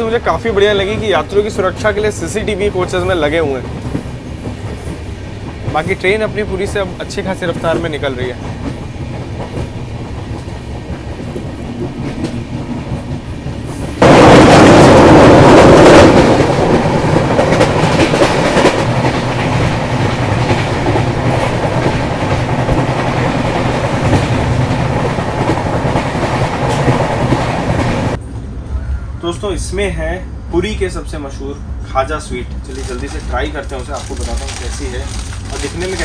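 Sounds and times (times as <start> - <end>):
train rushing noise: 0.0 - 36.0
train wheels clattering over rail joints: 2.8 - 28.1, 32.5 - 36.0.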